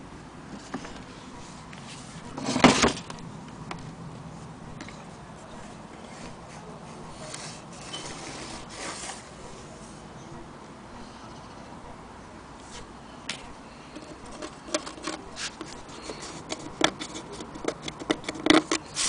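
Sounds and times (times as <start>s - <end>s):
low steady background noise: 0.0s - 19.0s
handling scrape: 0.5s - 3.1s, 5.4s - 10.0s, 12.6s - 12.9s, 14.0s - 19.0s.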